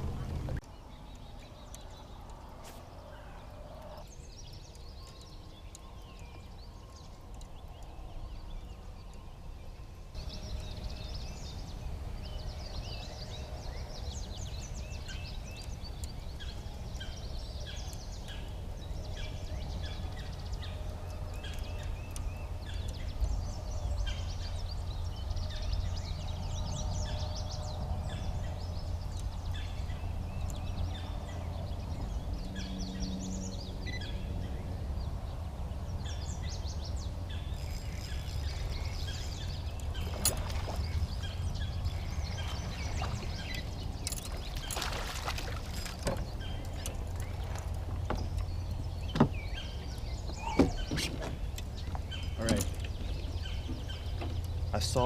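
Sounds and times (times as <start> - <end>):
songbirds chirping and singing: 0.0 - 55.0
steady low rumble: 0.0 - 55.0.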